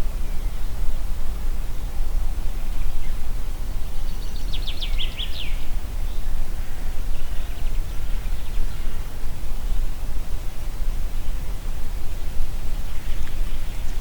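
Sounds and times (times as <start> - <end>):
wind in trees: 0.0 - 14.0
songbird singing: 3.8 - 9.0, 12.2 - 14.0.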